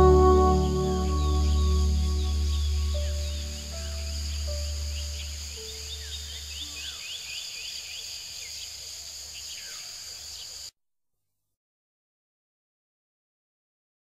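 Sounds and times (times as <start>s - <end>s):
low sustained music tones: 0.0s - 7.1s
bird chirps: 0.0s - 10.6s
crickets trilling: 0.0s - 10.7s.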